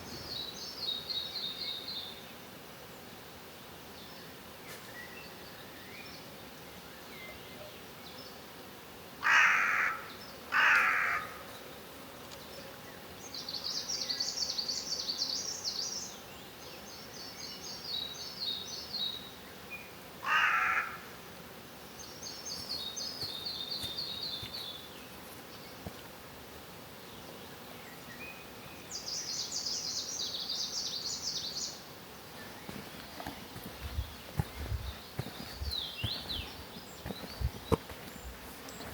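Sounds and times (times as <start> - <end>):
loud bird calls: 9.2 - 11.4, 20.2 - 21.1.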